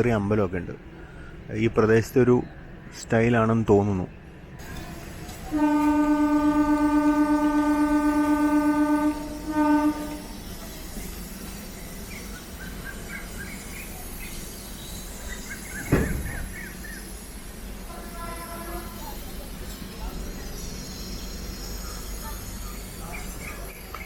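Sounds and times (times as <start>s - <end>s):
train horn blasts: 5.3s - 10.6s, 17.9s - 19.1s
sharp thump: 15.8s - 16.8s.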